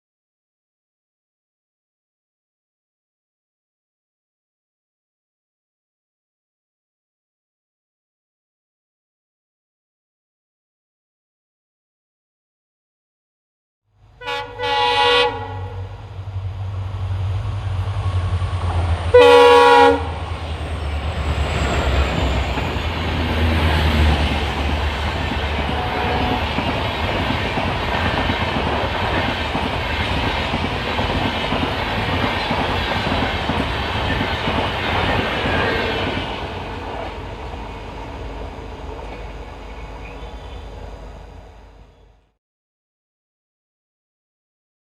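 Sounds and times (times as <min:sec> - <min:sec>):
locomotive horn blasts: 0:14.2 - 0:16.0, 0:19.1 - 0:20.2, 0:25.4 - 0:26.6
locomotive engines rumbling: 0:15.4 - 0:42.1
train wheels on rails: 0:16.0 - 0:41.9.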